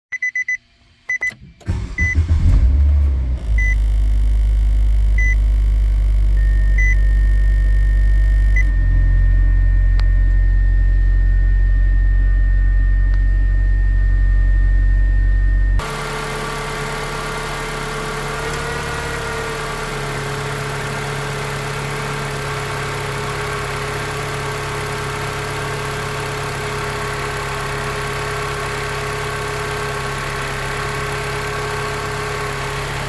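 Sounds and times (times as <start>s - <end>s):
car warning chime beeping: 0.1s - 2.4s, 6.4s - 10.8s
car engine cranking and idling: 0.3s - 33.0s.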